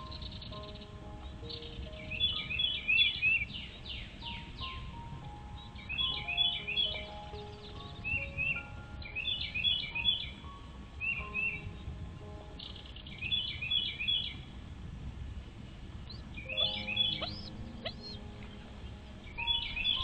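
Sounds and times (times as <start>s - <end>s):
bird chirping rapidly: 0.0s - 4.7s, 12.6s - 14.5s, 16.1s - 20.0s
soft background music: 0.0s - 20.0s.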